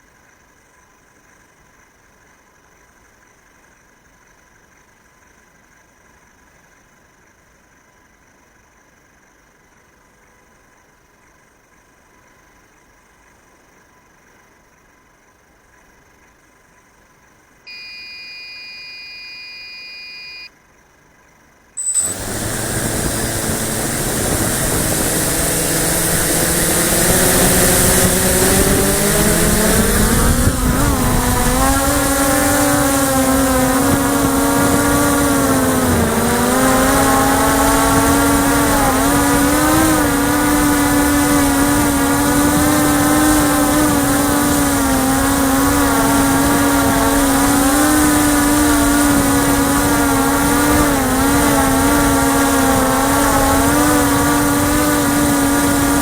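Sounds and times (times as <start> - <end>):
drone motors whining: 21.8 - 56.0
wind on microphone: 22.0 - 56.0.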